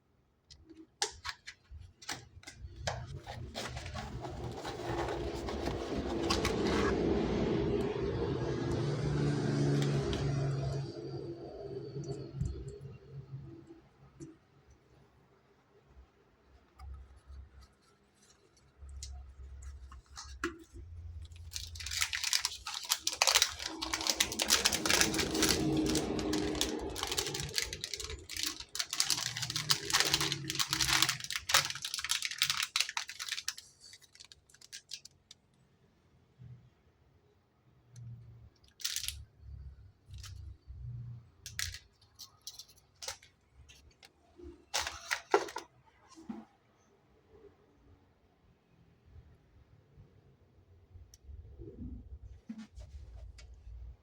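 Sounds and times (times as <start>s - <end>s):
packaging crackling and rustling: 1.0s - 7.4s, 17.2s - 35.4s, 38.7s - 39.2s, 41.5s - 45.7s.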